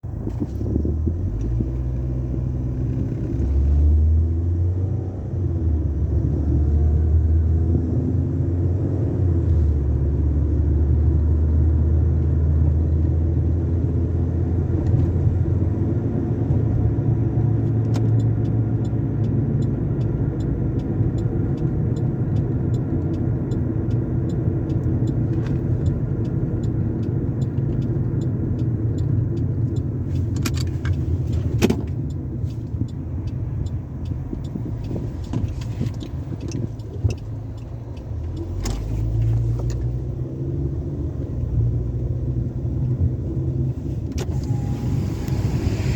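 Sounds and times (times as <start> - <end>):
regular ticking: 17.5 - 40.2.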